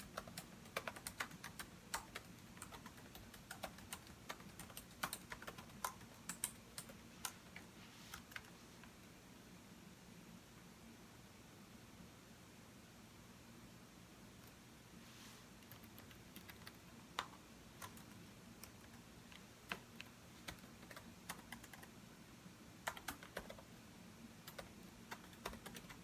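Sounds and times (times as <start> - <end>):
computer keyboard typing: 0.0 - 8.5, 15.6 - 21.9, 22.8 - 23.7, 24.4 - 26.0
steady low hiss: 0.0 - 26.0.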